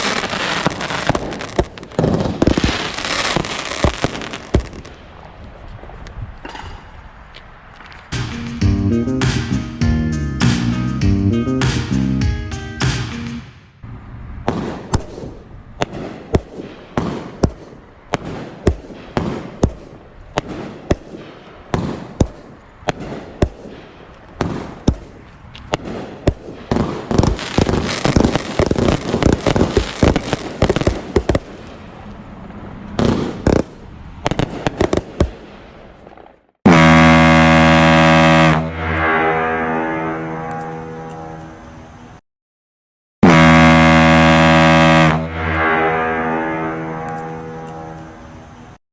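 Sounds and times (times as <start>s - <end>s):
fireworks crackling and banging: 0.0s - 7.0s, 14.4s - 36.5s.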